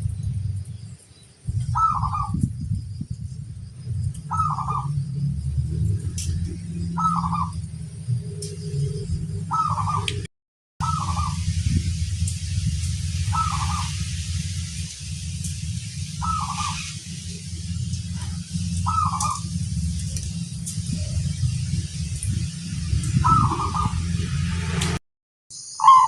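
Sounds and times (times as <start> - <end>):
steady low hum: 0.0 - 24.9
dove cooing: 1.7 - 2.4, 4.3 - 5.0, 7.0 - 7.6, 9.5 - 10.2, 13.3 - 13.9, 18.8 - 19.5.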